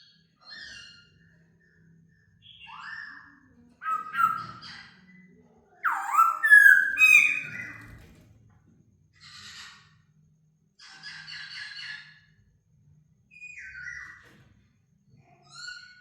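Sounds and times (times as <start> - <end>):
bird whistled song: 2.4 - 4.8, 5.8 - 8.0.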